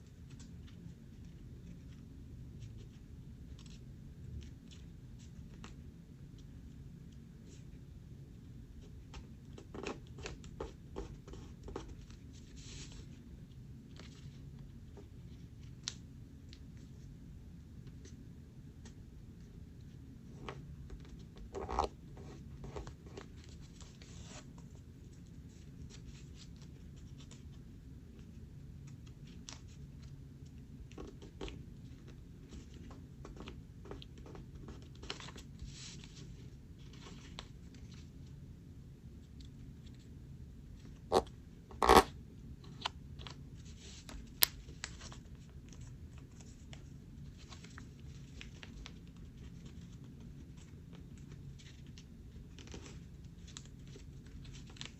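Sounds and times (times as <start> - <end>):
paper being folded and creased: 30.9 - 38.1, 42.7 - 54.9.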